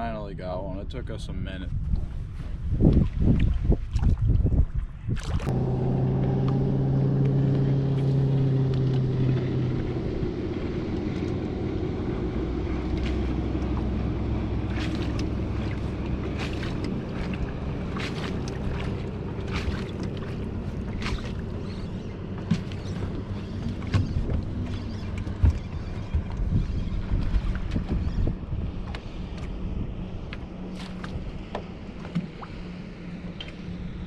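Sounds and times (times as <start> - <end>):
wind noise on microphone: 0.0 - 5.6, 22.5 - 30.1
outboard motor running: 5.4 - 34.0
low thumps: 5.5 - 28.3.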